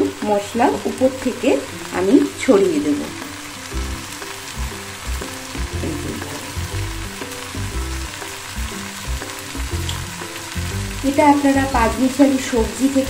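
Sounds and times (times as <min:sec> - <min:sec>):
fish frying in oil: 0:00.0 - 0:13.0
low thumps: 0:03.7 - 0:10.1.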